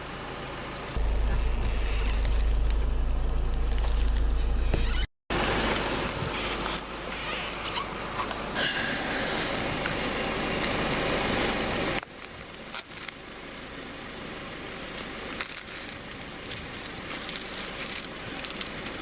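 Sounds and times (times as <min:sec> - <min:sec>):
car rolling slowly: 0:00.0 - 0:19.0
faint crackles: 0:14.7 - 0:19.0.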